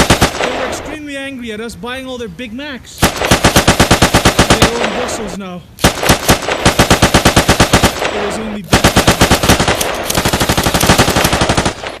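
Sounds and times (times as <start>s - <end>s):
rapid automatic gunfire: 0.0s - 0.7s, 3.0s - 5.2s, 5.8s - 12.0s.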